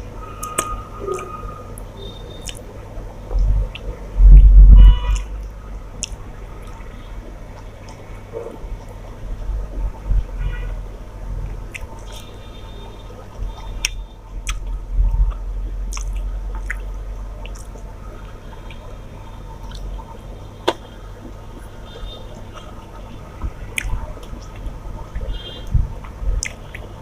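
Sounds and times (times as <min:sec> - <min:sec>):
sharp little clicks and smacks: 0:00.4 - 0:02.7, 0:11.5 - 0:12.3, 0:13.8 - 0:17.9, 0:20.6 - 0:21.7, 0:23.4 - 0:26.9
wet squishy chewing: 0:00.4 - 0:02.7, 0:06.0 - 0:06.9, 0:11.4 - 0:12.4, 0:13.4 - 0:18.9, 0:19.6 - 0:21.7, 0:23.5 - 0:26.9.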